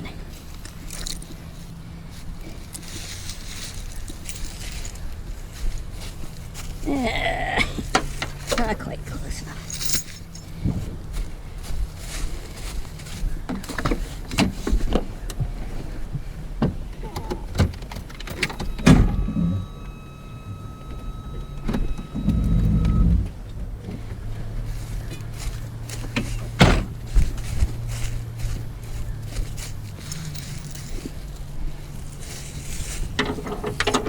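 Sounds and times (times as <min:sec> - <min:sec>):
truck engine idling: 0:00.0 - 0:34.0
metal chain clinking: 0:00.6 - 0:01.4, 0:02.5 - 0:06.8, 0:08.1 - 0:10.6, 0:25.3 - 0:34.0.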